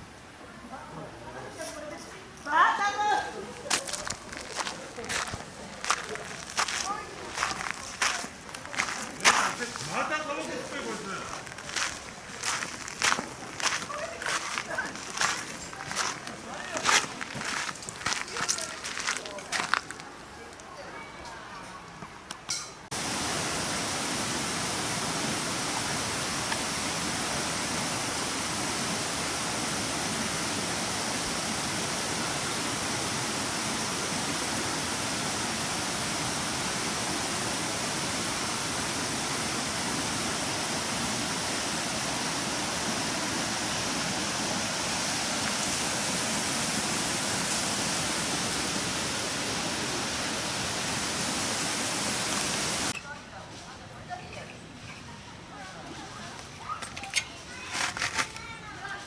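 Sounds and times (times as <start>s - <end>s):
water rushing: 22.9s - 53.0s.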